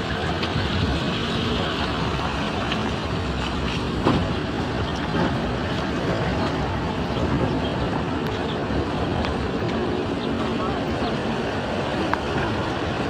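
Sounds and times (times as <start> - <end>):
vehicle rumbling: 0.0 - 13.0.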